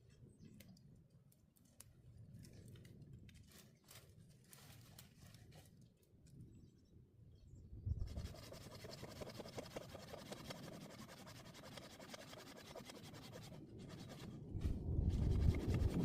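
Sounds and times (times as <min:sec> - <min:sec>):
hand saw cutting: 0:08.2 - 0:14.4
low rumble: 0:14.4 - 0:16.0.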